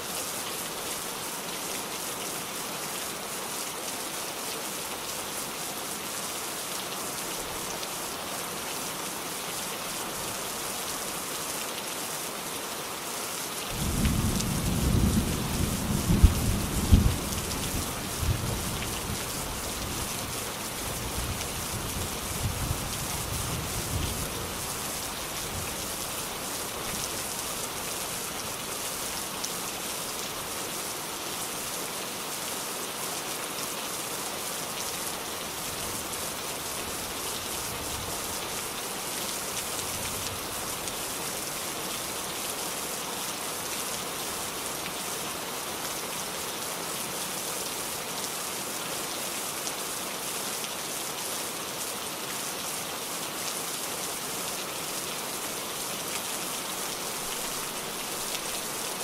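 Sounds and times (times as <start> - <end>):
rain pattering: 13.5 - 30.8, 34.7 - 45.1, 55.8 - 59.0.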